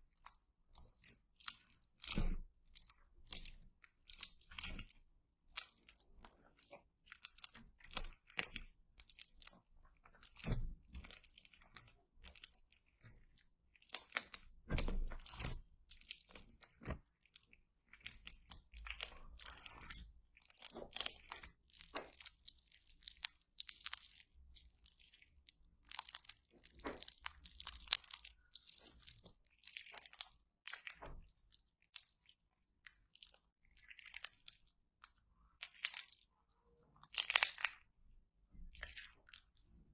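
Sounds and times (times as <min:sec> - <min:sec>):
slime crunching and crackling: 0:00.0 - 0:39.9.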